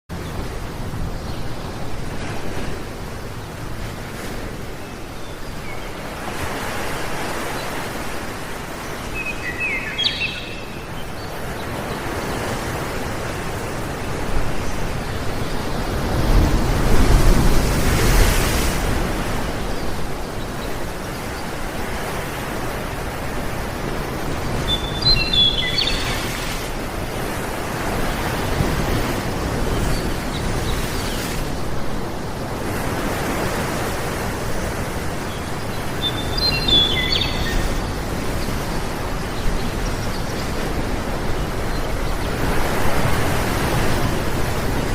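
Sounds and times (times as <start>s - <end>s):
water rushing: 0.1s - 44.9s
bird chirping: 9.1s - 12.0s, 24.5s - 26.6s, 35.3s - 40.5s.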